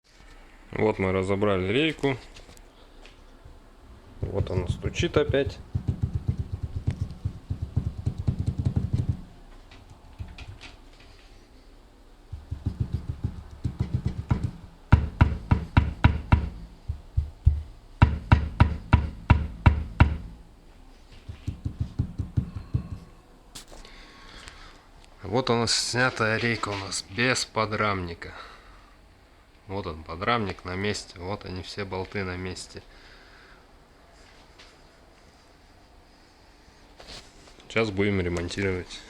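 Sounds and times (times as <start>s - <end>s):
car steering rack knocking: 4.2s - 9.4s, 12.4s - 20.5s, 21.3s - 23.2s.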